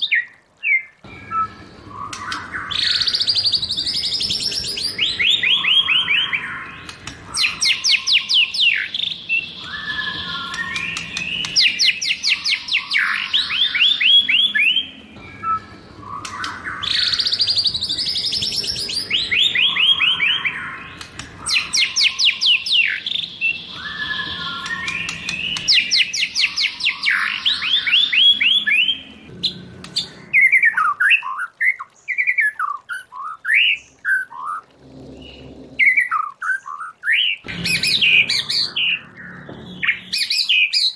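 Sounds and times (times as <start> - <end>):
bird whistled chirps: 0.0 - 29.1
bird singing trills and rattles: 0.0 - 40.9.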